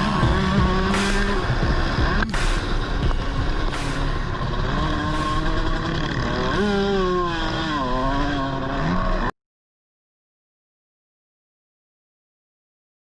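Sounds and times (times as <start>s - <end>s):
motocross bike engine revving: 0.0s - 9.3s.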